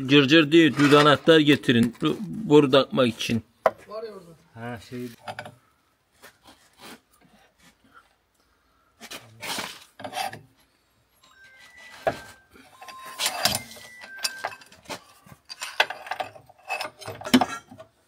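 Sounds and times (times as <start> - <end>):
hand tools scraping metal: 9.4 - 10.6, 11.2 - 18.0.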